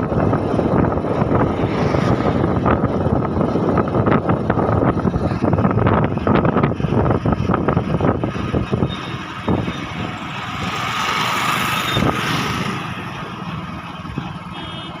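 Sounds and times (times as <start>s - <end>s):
vehicle passing: 0.6s - 3.8s, 9.8s - 13.5s.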